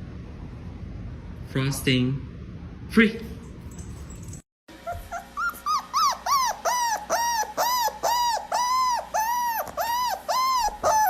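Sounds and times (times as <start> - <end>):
dog howling: 4.9 - 11.0.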